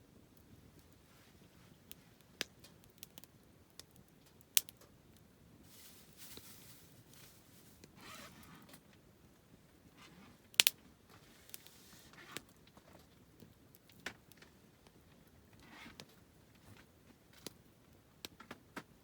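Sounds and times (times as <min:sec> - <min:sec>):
soft hiss of fire: 0:00.0 - 0:19.0
campfire crackling and popping: 0:00.1 - 0:07.2, 0:10.4 - 0:10.8, 0:11.5 - 0:11.8, 0:12.4 - 0:19.0.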